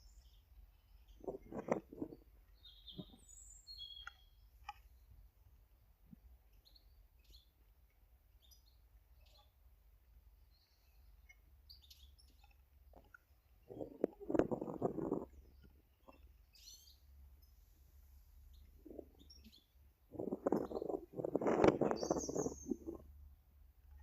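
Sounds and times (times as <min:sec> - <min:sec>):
birds chirping: 0:00.0 - 0:05.0, 0:10.4 - 0:23.0.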